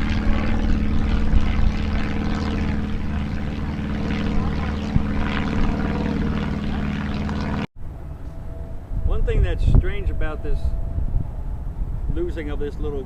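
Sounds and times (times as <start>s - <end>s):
motor droning: 0.0s - 12.2s.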